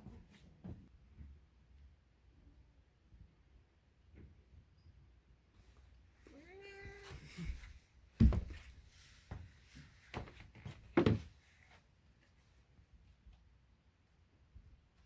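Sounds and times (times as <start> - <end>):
cat meowing: 6.3 - 7.6
thuds and knocks on wood: 8.2 - 8.7, 10.2 - 11.3.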